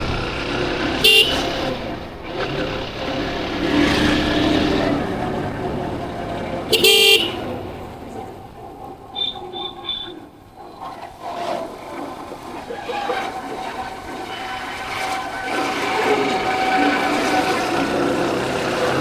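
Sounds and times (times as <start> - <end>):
motorcycle engine: 0.0 - 19.0
road and wind noise: 0.0 - 19.0
vehicle horn honks: 1.0 - 2.0, 6.7 - 7.8.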